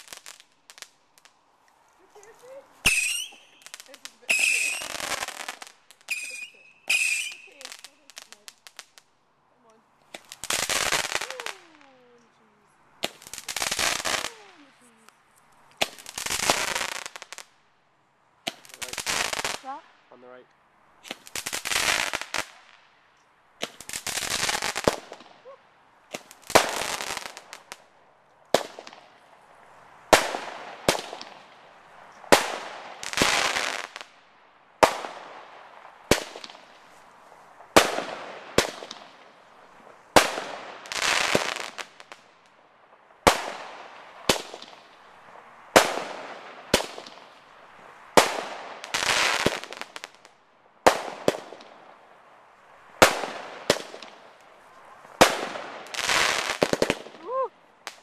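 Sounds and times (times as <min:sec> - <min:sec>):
fireworks crackling: 0:00.0 - 0:17.8, 0:18.4 - 0:58.0
fireworks bangs: 0:02.0 - 0:09.0, 0:10.1 - 0:12.3, 0:13.0 - 0:17.5, 0:18.4 - 0:20.1, 0:23.6 - 0:27.9, 0:28.5 - 0:29.2, 0:30.1 - 0:34.2, 0:34.8 - 0:37.0, 0:37.6 - 0:42.3, 0:43.2 - 0:52.0, 0:53.0 - 0:54.4, 0:55.0 - 0:58.0.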